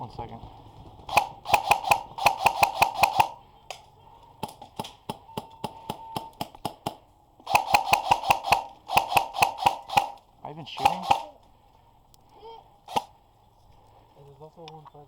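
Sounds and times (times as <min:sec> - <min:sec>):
airsoft gun firing: 0:00.6 - 0:11.5, 0:12.9 - 0:13.2.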